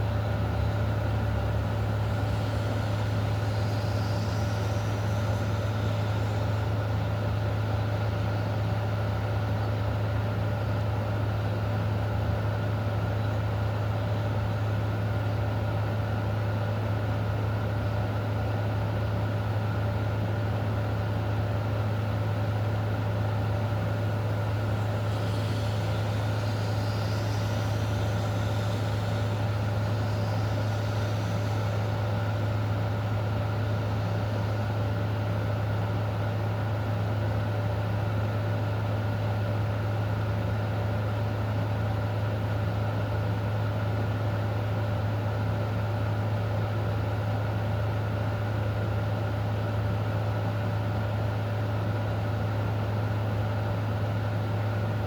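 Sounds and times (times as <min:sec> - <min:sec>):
low mechanical hum: 0:00.0 - 0:55.0
faint hiss: 0:01.5 - 0:07.0, 0:23.6 - 0:35.5.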